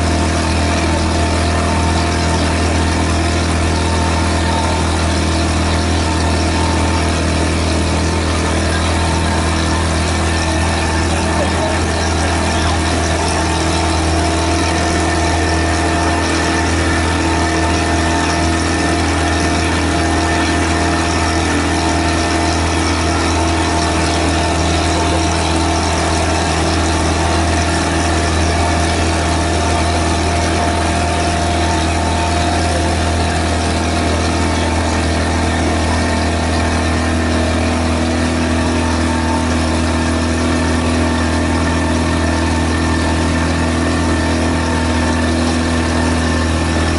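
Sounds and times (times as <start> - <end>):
boat engine humming: 0.0 - 46.9.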